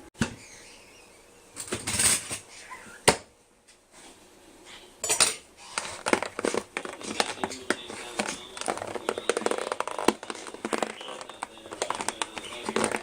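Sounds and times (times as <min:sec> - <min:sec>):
dishes clicking and knocking: 0:05.0 - 0:13.0.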